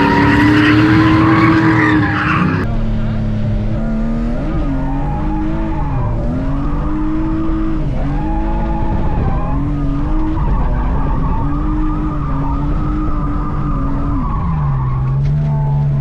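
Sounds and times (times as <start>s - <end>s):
car engine revving hard: 0.0s - 2.7s
tyre skid noise: 0.0s - 2.7s.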